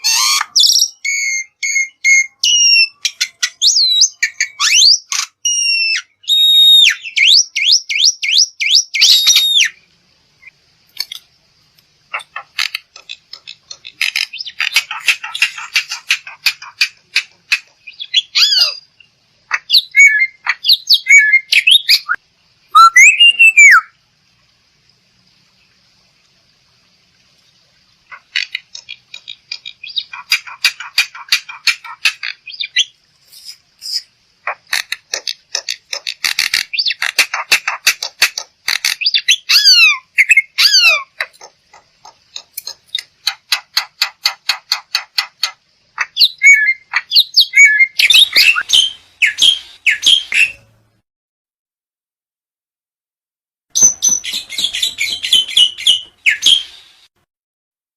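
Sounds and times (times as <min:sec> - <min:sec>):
myna calling: 0:12.1 - 0:18.9, 0:19.5 - 0:23.9, 0:28.1 - 0:50.7.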